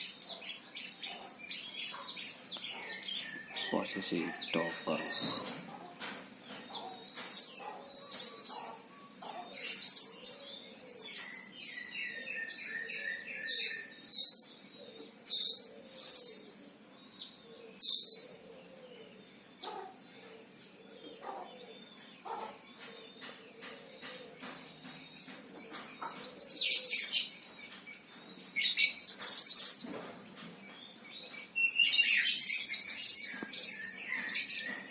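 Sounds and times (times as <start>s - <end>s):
songbird singing: 0.0s - 34.9s.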